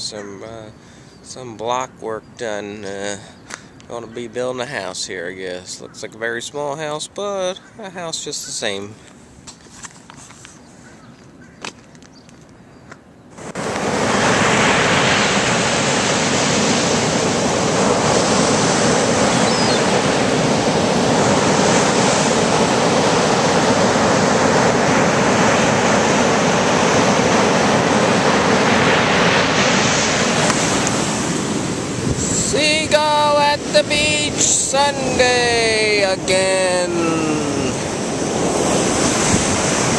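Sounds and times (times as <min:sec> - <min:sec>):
ocean surf breaking on beach: 0:13.3 - 0:39.9.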